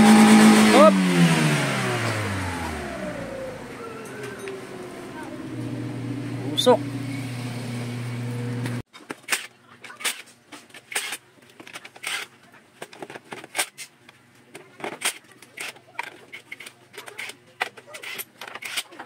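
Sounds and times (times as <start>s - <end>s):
car engine running: 0.0s - 8.8s.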